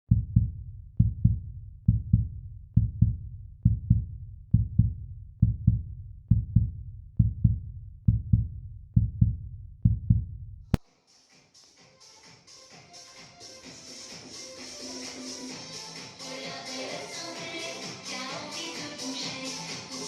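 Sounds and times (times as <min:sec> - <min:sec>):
heartbeat thumps: 0:00.1 - 0:10.8.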